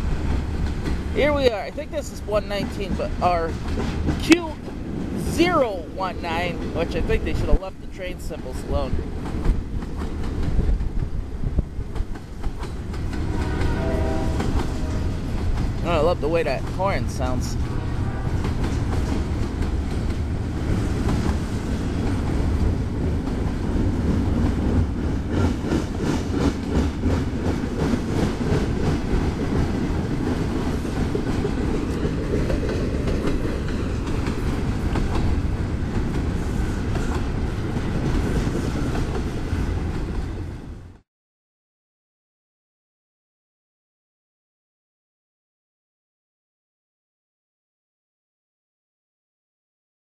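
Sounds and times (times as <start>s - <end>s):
freight train wheels clattering: 0.0s - 1.5s, 2.6s - 5.6s, 9.0s - 40.5s.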